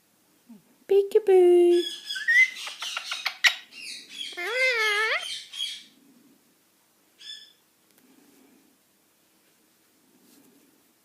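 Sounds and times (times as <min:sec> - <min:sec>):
parrot squawk: 0:01.8 - 0:05.9
parrot wavering call: 0:01.8 - 0:05.9.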